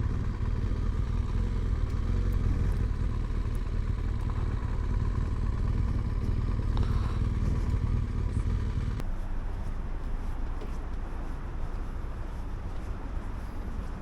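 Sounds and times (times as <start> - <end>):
motorcycle engine: 0.0 - 9.0.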